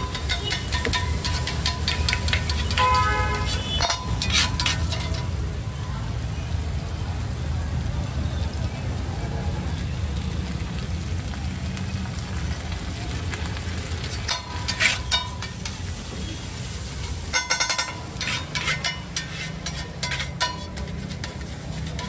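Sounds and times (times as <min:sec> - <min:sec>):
metal spatula scraping and clanking: 0:00.0 - 0:05.4, 0:14.0 - 0:22.0
eggs sizzling on a griddle: 0:00.0 - 0:22.0.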